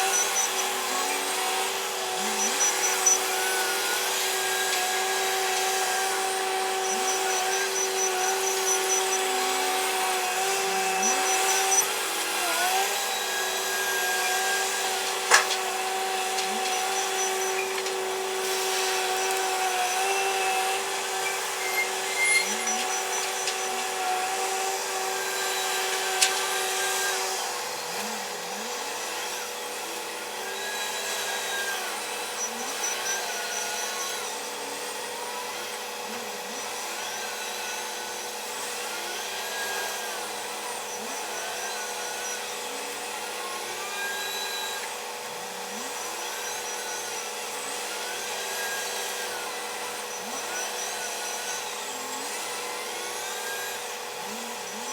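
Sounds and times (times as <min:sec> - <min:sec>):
steady whine: 0:00.0 - 0:27.6.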